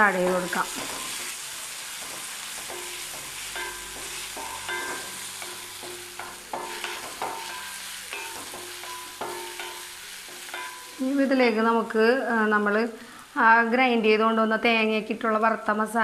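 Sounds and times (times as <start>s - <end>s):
onions sizzling in hot oil: 0.0s - 15.8s
spatula scraping a pan: 0.2s - 11.0s.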